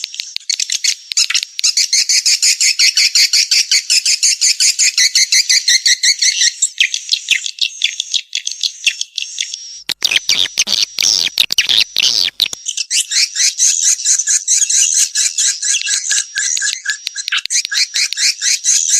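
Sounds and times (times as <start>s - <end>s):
rapid clicks and rasps: 9.9s - 12.6s.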